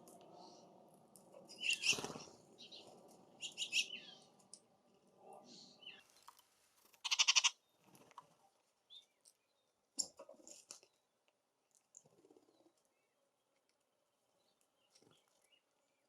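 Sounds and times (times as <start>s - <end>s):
bird harsh rasping call: 7.0s - 7.6s.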